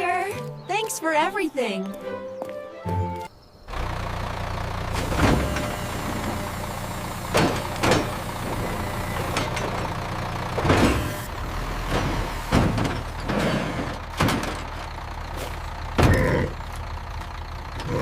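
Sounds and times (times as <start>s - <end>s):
cartoon engine rumble: 3.7s - 18.0s.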